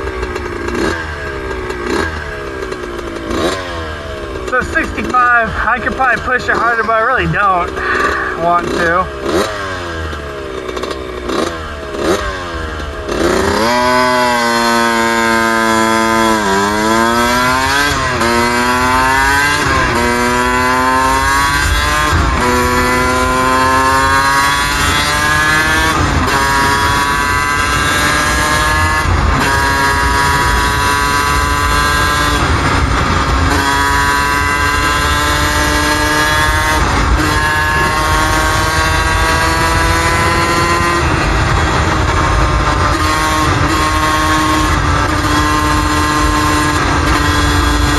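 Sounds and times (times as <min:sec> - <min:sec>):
two-stroke motorcycle engine accelerating: 0:00.0 - 0:47.9.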